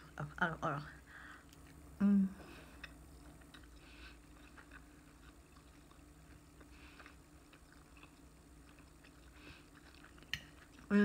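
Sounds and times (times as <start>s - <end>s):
low steady hum: 0.0s - 11.0s
person chewing: 1.4s - 1.8s, 2.5s - 11.0s.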